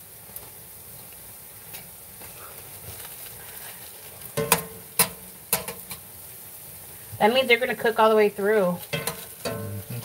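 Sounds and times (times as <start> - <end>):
dough frying in oil: 0.0 - 10.0
utensil knocking against skillet: 4.4 - 6.0, 8.9 - 9.7.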